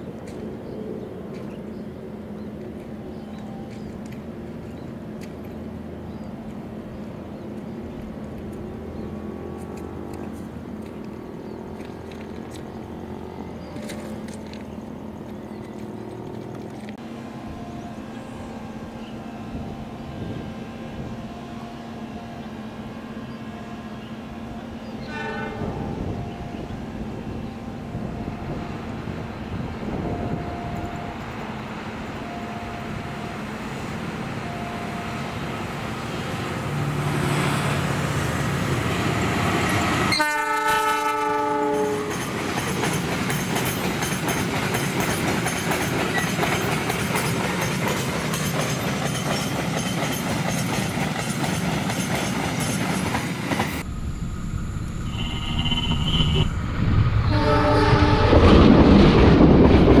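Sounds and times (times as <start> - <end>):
locomotive engine: 0.0 - 60.0
locomotive horn: 17.1 - 36.6, 39.1 - 42.2, 57.2 - 58.6.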